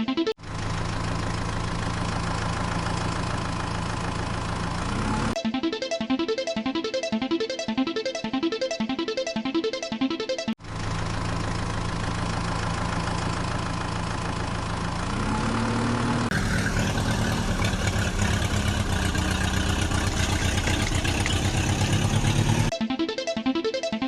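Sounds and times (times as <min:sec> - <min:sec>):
heavy vehicle engine: 0:00.4 - 0:05.4, 0:10.6 - 0:22.7.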